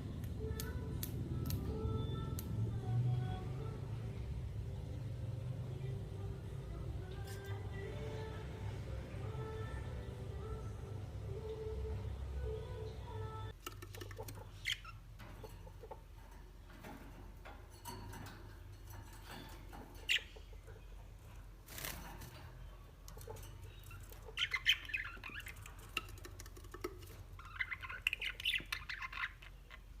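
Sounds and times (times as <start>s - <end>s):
parrots chirping and squawking: 13.8s - 16.3s, 17.8s - 21.1s, 21.8s - 30.0s.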